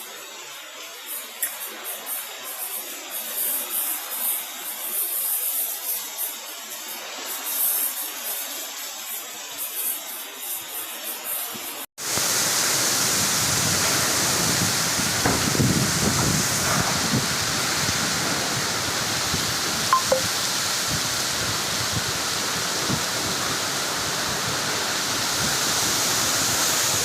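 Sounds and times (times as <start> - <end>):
heavy rain pouring: 12.0 - 27.0.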